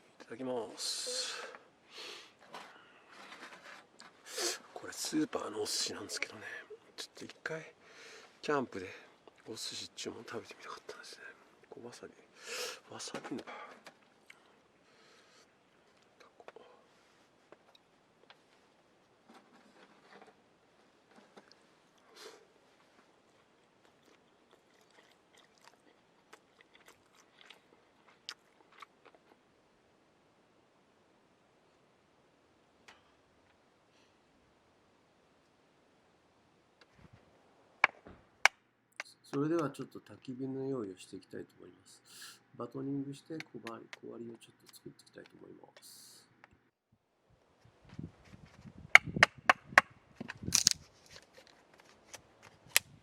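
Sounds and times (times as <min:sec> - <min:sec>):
person chewing: 0:23.3 - 0:29.4.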